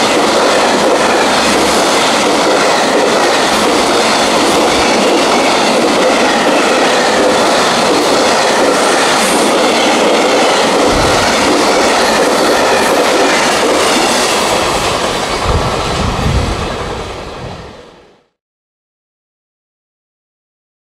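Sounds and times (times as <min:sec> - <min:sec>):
freight train wheels clattering: 0:00.0 - 0:17.2
low thuds: 0:10.8 - 0:11.7.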